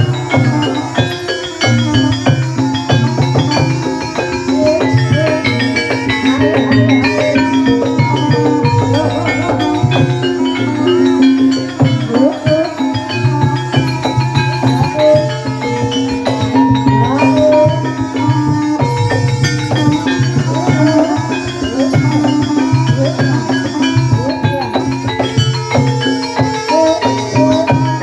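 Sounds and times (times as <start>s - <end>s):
gamelan music: 0.0s - 28.0s.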